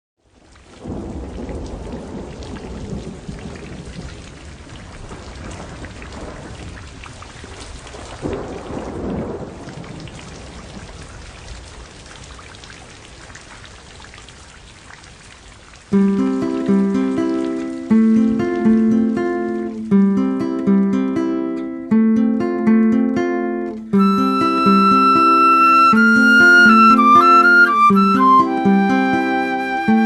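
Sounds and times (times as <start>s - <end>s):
steady rain: 0.2s - 22.0s, 22.6s - 30.0s
rolling thunder: 0.8s - 12.4s.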